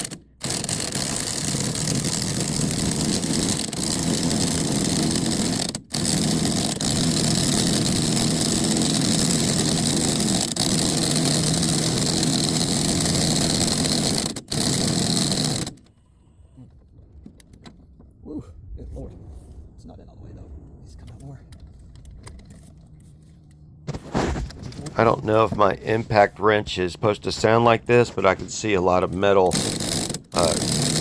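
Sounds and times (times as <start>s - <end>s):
impact wrench hammering: 29.5s - 31.0s.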